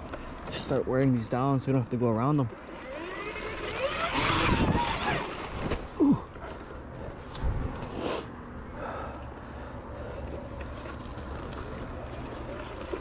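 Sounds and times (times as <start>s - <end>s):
dirt bike engine revving: 2.6s - 5.6s.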